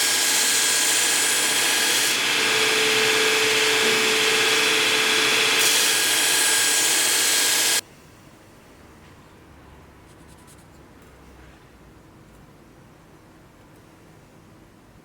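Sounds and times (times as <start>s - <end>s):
power tool running under load: 0.0s - 7.8s.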